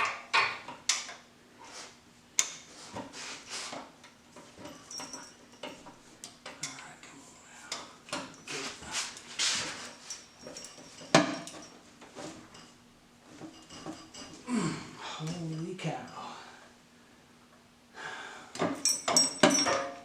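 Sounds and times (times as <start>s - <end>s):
metal hand tools clinking: 4.6s - 6.9s, 18.8s - 20.0s.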